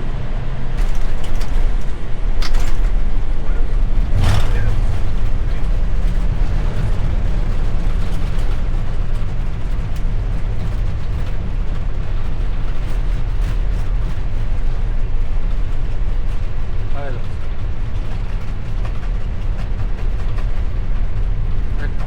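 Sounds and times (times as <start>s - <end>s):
jet engine rumble: 0.0s - 22.0s
wheels running on runway: 0.0s - 22.0s.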